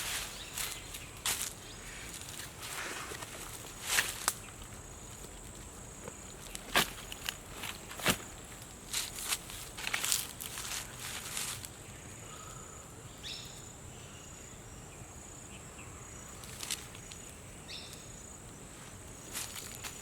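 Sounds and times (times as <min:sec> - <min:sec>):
rustling: 0:06.3 - 0:11.7.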